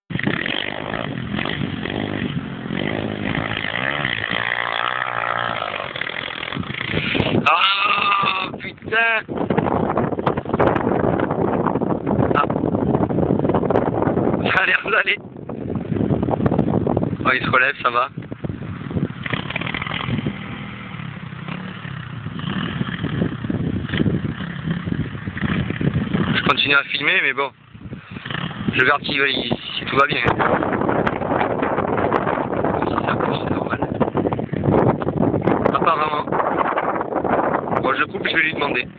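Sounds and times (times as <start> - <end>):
dirt bike engine revving: 0.1 - 8.6, 18.5 - 26.9, 27.7 - 37.7.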